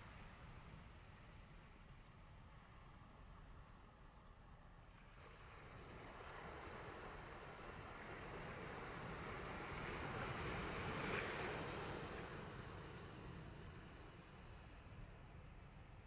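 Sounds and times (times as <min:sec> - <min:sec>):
wind: 0:00.0 - 0:16.0
surf: 0:05.2 - 0:14.8.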